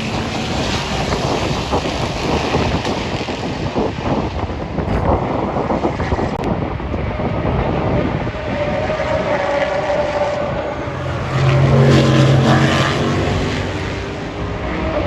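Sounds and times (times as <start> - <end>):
race car engine passing: 8.8 - 15.0.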